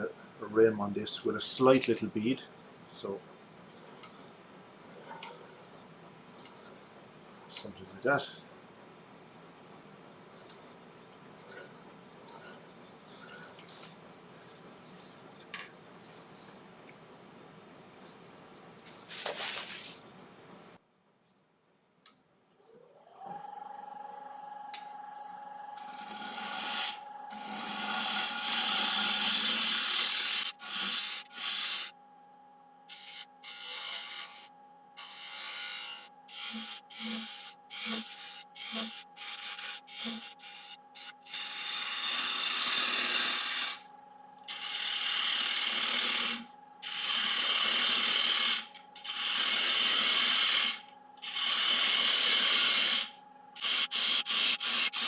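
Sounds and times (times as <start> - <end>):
lathe humming: 25.8 - 31.9, 32.9 - 43.9, 44.5 - 55.0
turning tool shaving wood: 25.8 - 31.9, 32.9 - 43.8, 44.5 - 55.0.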